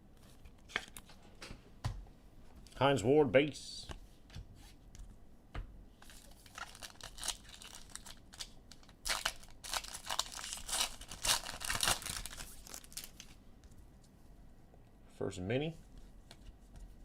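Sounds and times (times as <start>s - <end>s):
wrapper tearing and crinkling: 6.0s - 13.4s.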